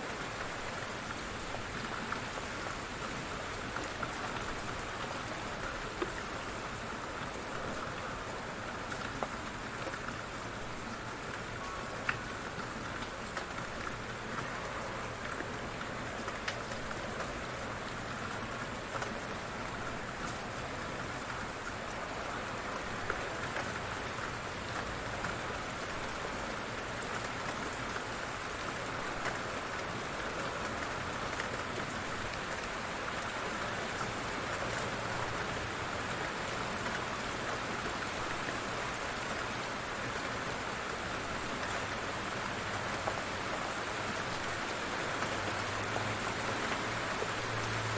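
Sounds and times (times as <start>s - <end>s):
light rain falling: 0.0s - 47.9s
raindrop ticks: 11.3s - 14.6s, 15.2s - 17.4s.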